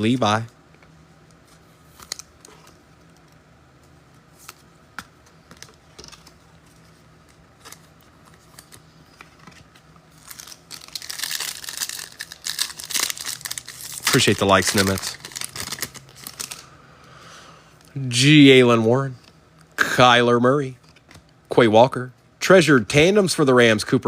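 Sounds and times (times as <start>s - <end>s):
foil wrapper crinkling: 9.4s - 16.7s.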